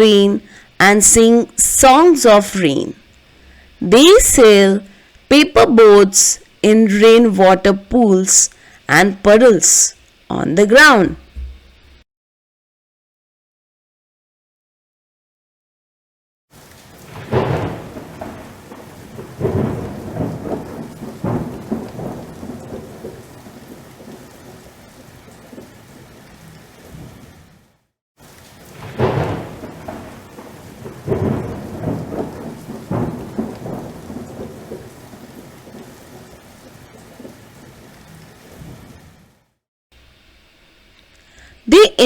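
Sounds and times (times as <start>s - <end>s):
heavy rain: 0.0s - 12.0s, 16.5s - 42.0s
rumbling thunderclaps: 16.8s - 27.3s, 28.6s - 39.2s.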